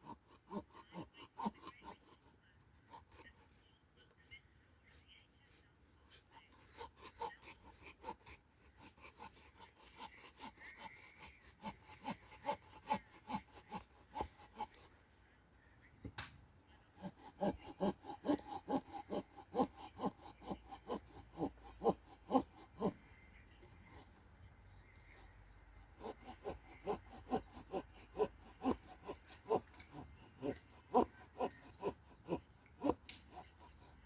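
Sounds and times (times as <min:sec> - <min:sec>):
hand saw cutting wood: 0:00.0 - 0:15.0, 0:16.9 - 0:24.4, 0:25.0 - 0:34.0.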